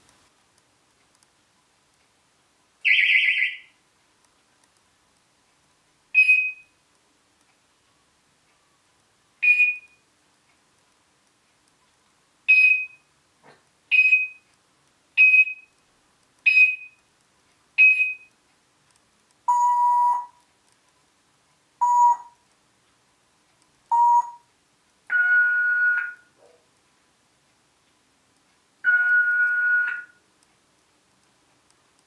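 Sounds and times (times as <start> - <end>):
parrot imitating electronic beeps: 2.8 - 3.7, 9.4 - 9.9, 12.5 - 13.0, 13.9 - 14.4, 16.5 - 17.0, 17.8 - 18.3, 19.5 - 20.4, 21.8 - 22.4, 23.9 - 24.4, 25.1 - 26.3, 28.8 - 30.2.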